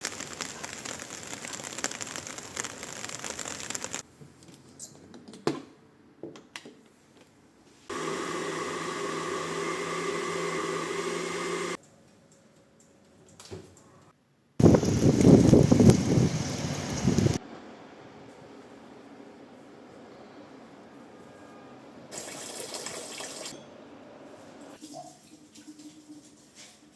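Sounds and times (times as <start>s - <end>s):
steady hiss with ticks: 0.0s - 4.0s, 14.6s - 17.4s.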